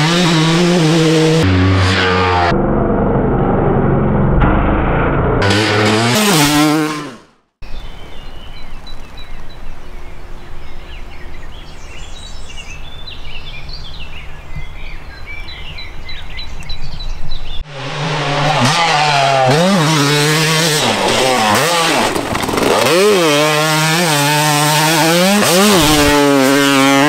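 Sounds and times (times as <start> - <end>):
motorcycle engine revving: 0.0 - 7.5, 17.6 - 27.0
birds chirping: 7.6 - 17.7.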